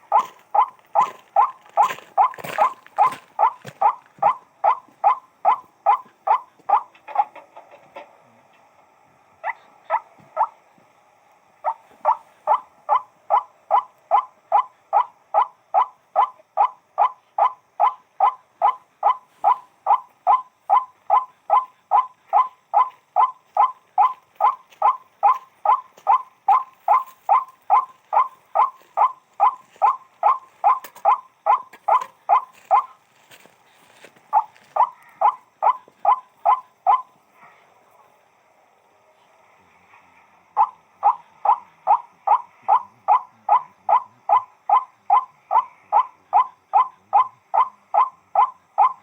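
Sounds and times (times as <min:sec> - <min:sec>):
waterhen calling: 0:00.0 - 0:08.1, 0:09.4 - 0:10.6, 0:11.6 - 0:37.2.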